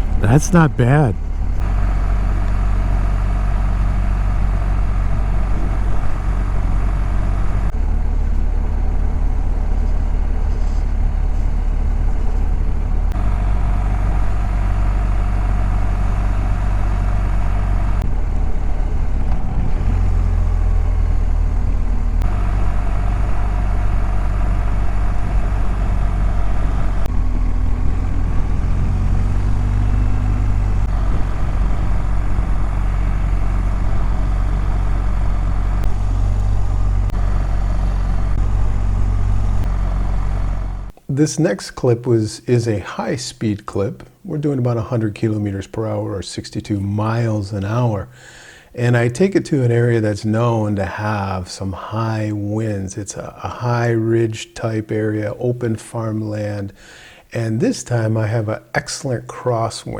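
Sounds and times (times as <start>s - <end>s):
motorcycle engines running: 0.9s - 41.0s.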